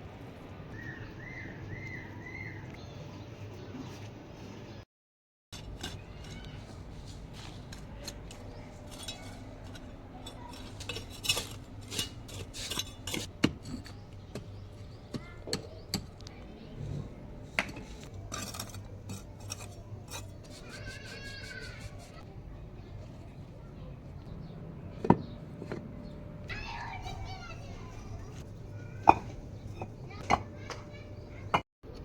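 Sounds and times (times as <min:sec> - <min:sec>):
hard objects clinking and knocking: 0:05.6 - 0:16.3, 0:17.4 - 0:21.8, 0:28.4 - 0:31.6.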